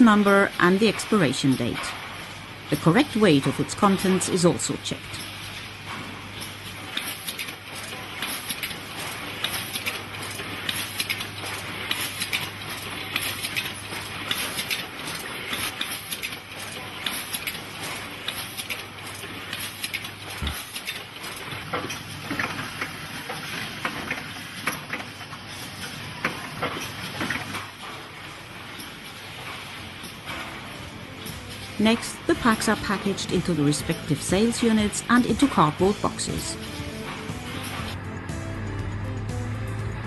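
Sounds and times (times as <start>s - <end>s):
machinery clicking and clattering: 0.0s - 38.4s
low machine hum: 20.2s - 40.0s.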